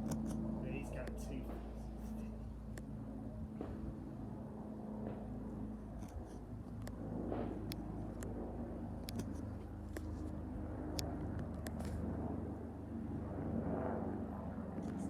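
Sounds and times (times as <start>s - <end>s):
helicopter low drone: 0.0s - 15.0s
sharp clicks: 9.0s - 10.2s.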